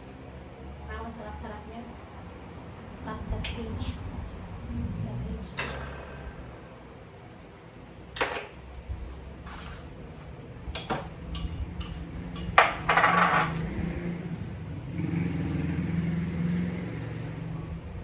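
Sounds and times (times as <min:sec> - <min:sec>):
low steady hum: 0:00.0 - 0:18.0
cutlery and dishes clinking: 0:08.2 - 0:13.7.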